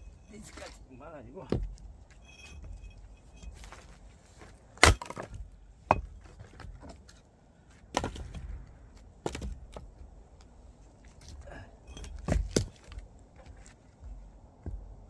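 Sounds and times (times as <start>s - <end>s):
wood cracking: 4.8s - 5.4s
wood splintering: 4.8s - 6.6s.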